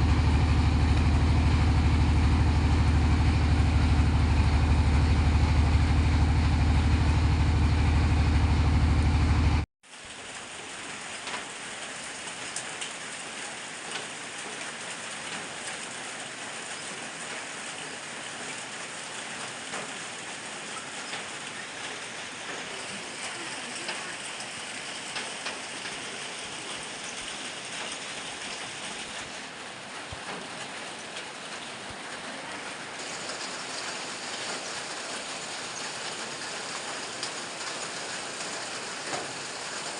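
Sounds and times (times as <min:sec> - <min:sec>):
engine running: 0:00.0 - 0:09.7, 0:32.8 - 0:39.9
heavy rain falling: 0:00.0 - 0:39.9.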